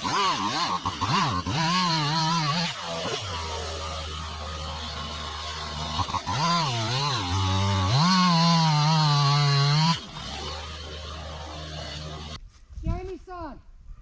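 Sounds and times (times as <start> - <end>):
chainsaw engine idling and revving: 0.0 - 12.4.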